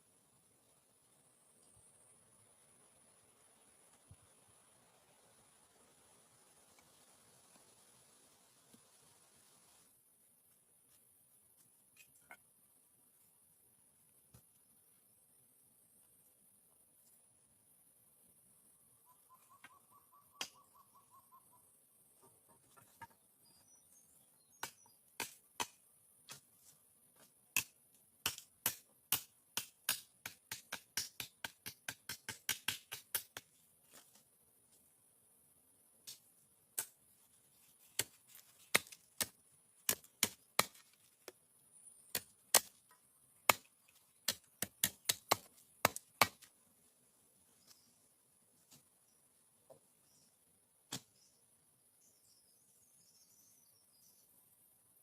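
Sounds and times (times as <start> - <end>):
steady high hiss: 0.0 - 11.4.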